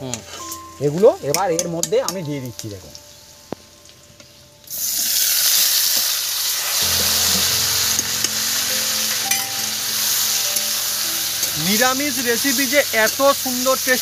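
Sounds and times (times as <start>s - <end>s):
potatoes sizzling in hot oil: 4.7s - 14.0s.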